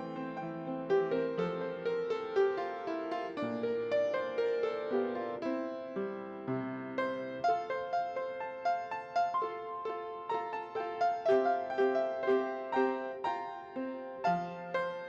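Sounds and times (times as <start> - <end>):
slow gentle piano piece: 0.0 - 15.0.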